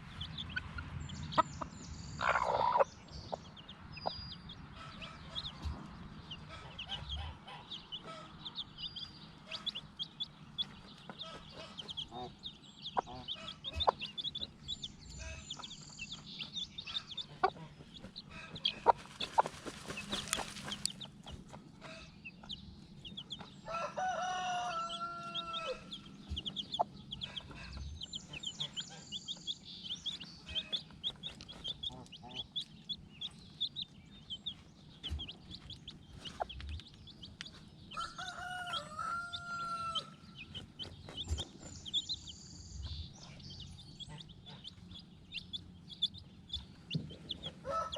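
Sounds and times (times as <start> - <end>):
chickens chirping and clucking: 0.0 - 47.9
rooster crowing: 23.6 - 26.0, 38.0 - 40.2, 47.6 - 47.9.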